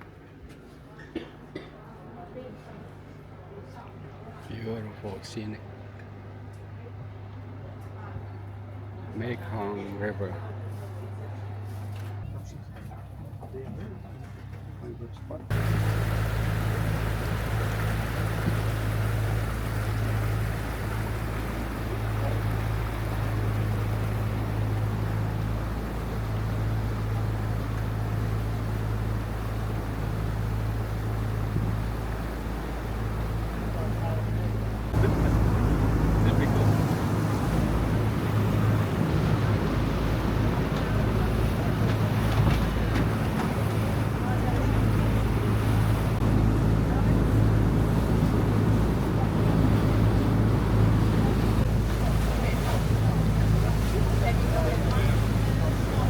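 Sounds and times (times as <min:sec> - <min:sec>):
boat engine humming: 0:00.0 - 0:56.0
wind: 0:00.0 - 0:56.0
water rushing: 0:15.5 - 0:56.0.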